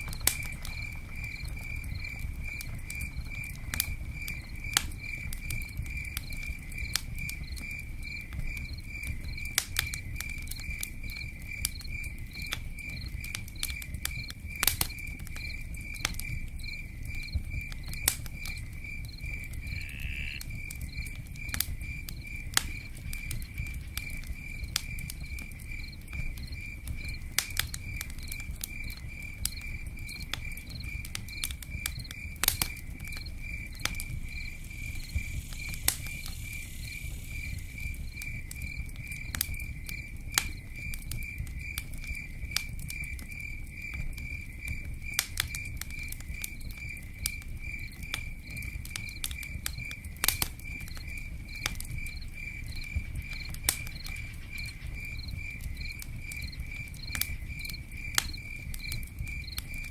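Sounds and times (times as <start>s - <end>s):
rain pattering on tent roof: 0.0s - 6.5s
campfire crackling: 0.0s - 59.9s
cricket chirping: 0.0s - 59.9s.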